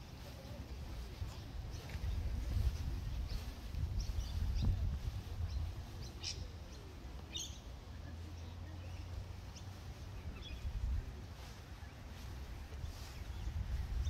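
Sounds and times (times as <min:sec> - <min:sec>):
steady low rumble: 0:00.0 - 0:14.0
birds chirping: 0:00.4 - 0:14.0.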